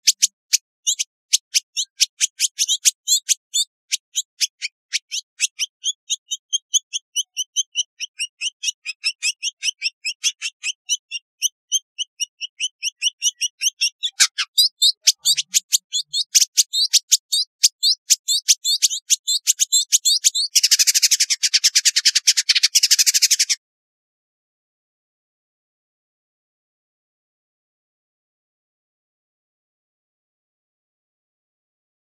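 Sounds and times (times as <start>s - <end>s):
bird high chirps: 0.0s - 23.6s.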